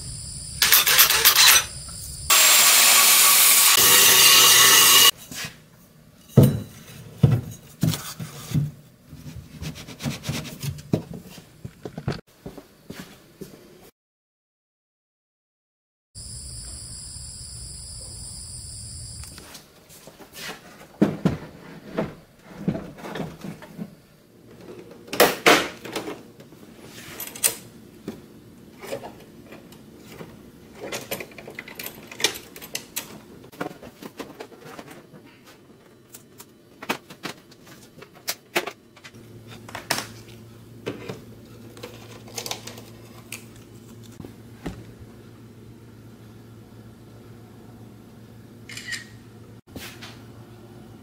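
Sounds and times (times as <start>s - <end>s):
crickets chirping: 0.0s - 2.3s, 16.2s - 19.4s.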